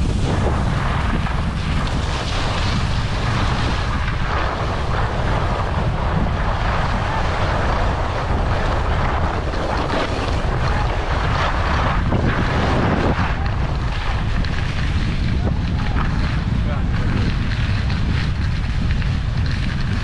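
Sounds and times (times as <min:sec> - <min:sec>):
skis sliding over snow: 0:00.0 - 0:20.0
wind rumbling over microphone: 0:00.0 - 0:20.0.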